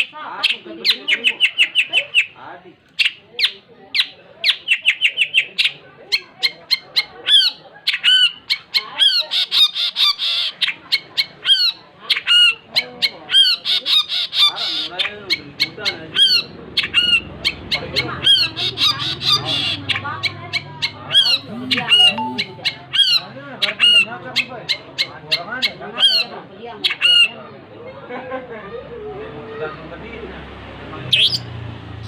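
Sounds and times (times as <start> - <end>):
harsh bird chatter: 3.0 - 27.4
shrike singing: 21.2 - 23.2.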